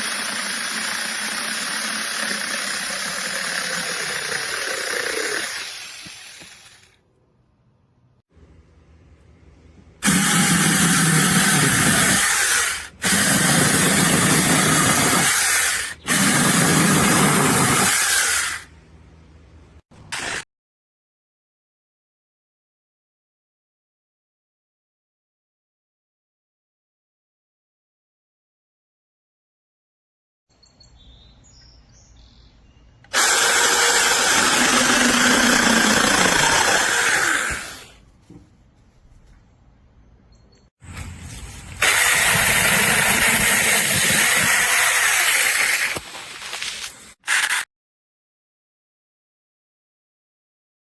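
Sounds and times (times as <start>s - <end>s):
mini chainsaw running: 0.0s - 7.0s, 10.0s - 18.6s, 33.1s - 37.8s, 41.8s - 47.6s.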